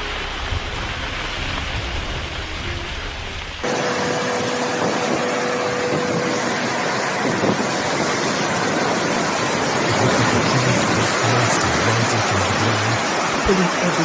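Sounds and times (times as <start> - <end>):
driving water: 0.0 - 4.1
storm wind: 0.0 - 14.0.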